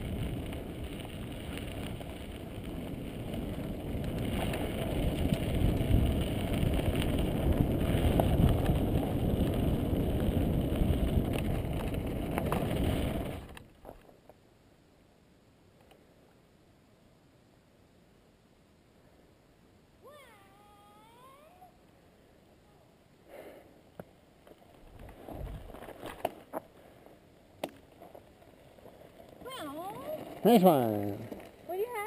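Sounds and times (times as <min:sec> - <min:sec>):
wind buffeting microphone: 0:00.0 - 0:13.6
bike tyres rumbling on trail: 0:00.0 - 0:14.3, 0:24.4 - 0:32.0.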